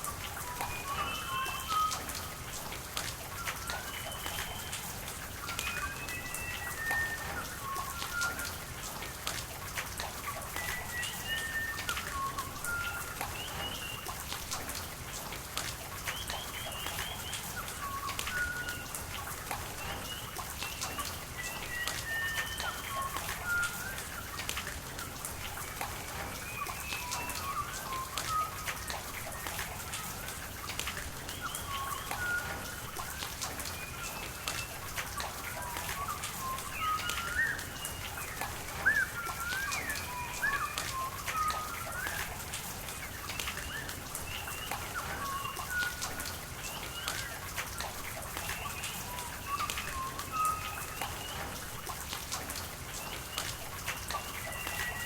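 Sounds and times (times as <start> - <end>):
raindrops ticking on surfaces: 0.0 - 55.0
steady rain falling: 0.0 - 55.0
birds chirping: 33.8 - 42.4.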